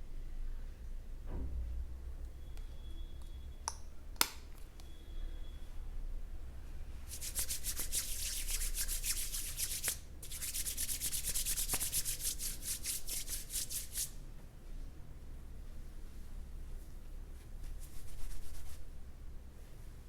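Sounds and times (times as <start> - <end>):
hands rubbing through hair: 7.1 - 14.2, 17.4 - 18.9.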